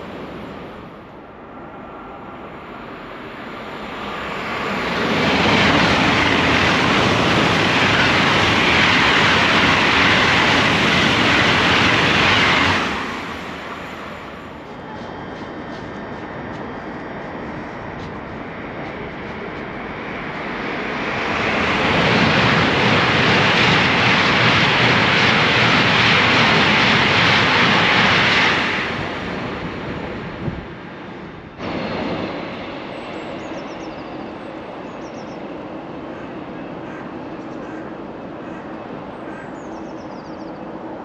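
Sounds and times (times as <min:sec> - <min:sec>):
high-speed train passing: 0:00.0 - 0:41.0
faint bird chirps: 0:39.2 - 0:40.8.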